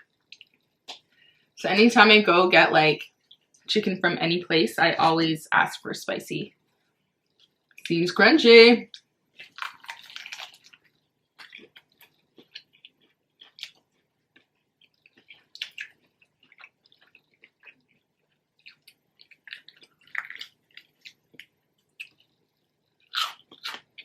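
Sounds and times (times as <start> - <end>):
chewing crispy chicken crunches: 9.0 - 24.0.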